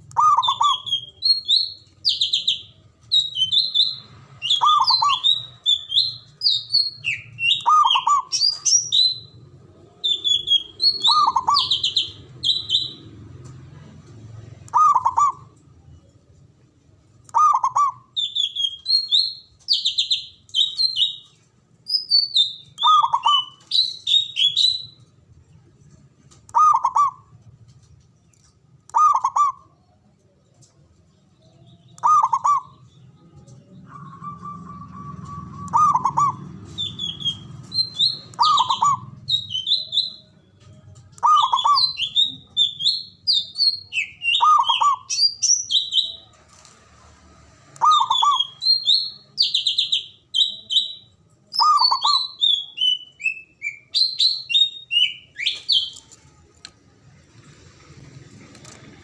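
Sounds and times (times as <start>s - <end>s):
small birds chirping and trilling: 0.1s - 46.9s, 47.6s - 56.5s
dove cooing: 10.2s - 12.1s, 14.7s - 15.5s, 26.6s - 27.3s, 28.9s - 29.8s, 32.0s - 32.7s, 33.8s - 36.9s.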